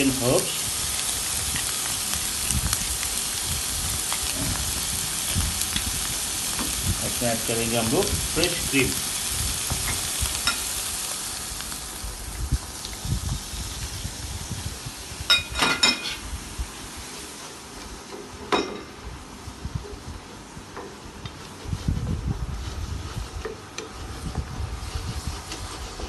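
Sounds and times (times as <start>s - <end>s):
mushrooms sizzling in a pan: 0.0s - 18.1s.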